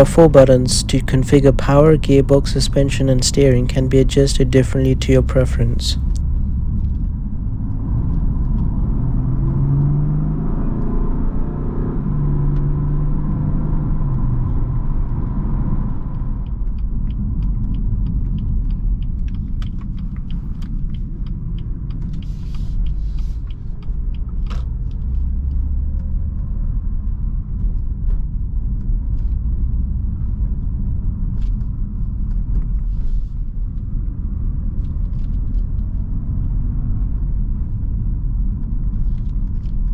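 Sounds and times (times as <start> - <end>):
car engine and exhaust: 7.7 - 16.0.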